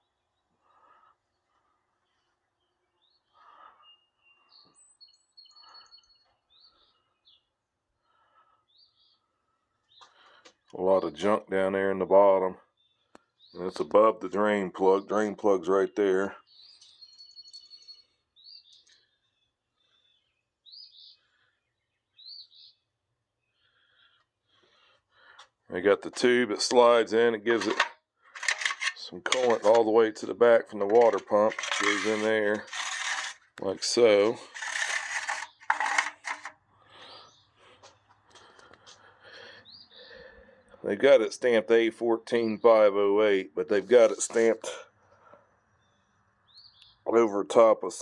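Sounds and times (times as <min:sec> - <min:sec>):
faint bird chirps: 0:00.0 - 0:10.7, 0:16.4 - 0:24.2
faint birdsong chirps and trills: 0:00.0 - 0:48.0.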